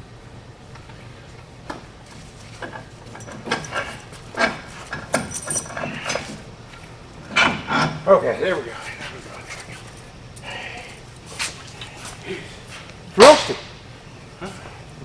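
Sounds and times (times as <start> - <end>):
metal tools clinking and knocking: 2.6 - 6.4.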